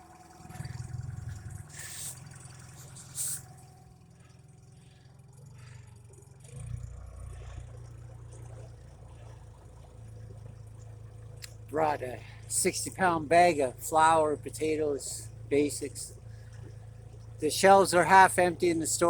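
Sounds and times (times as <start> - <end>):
truck engine humming: 0.0 - 19.0
short hissy rushes: 1.7 - 2.2, 3.0 - 3.4.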